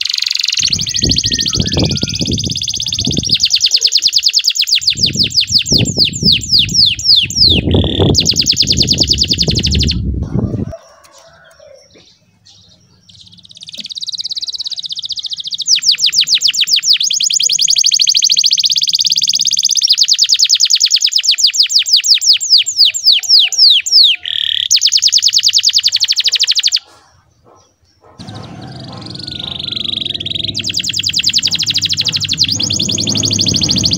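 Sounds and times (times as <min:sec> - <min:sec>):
canary singing trills: 0:00.0 - 0:10.1, 0:10.9 - 0:33.9
low rumbling noise: 0:00.6 - 0:03.4, 0:28.2 - 0:33.9.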